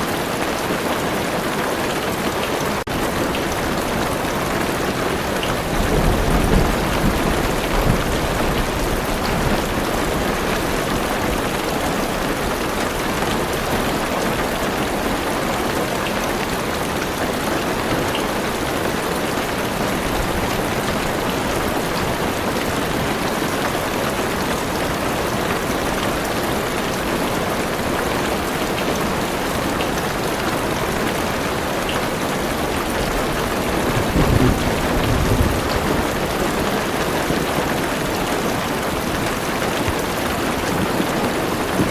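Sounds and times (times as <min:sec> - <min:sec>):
heavy rain on car roof: 0:00.0 - 0:41.9
thunder rumble: 0:05.5 - 0:11.5, 0:33.0 - 0:38.5.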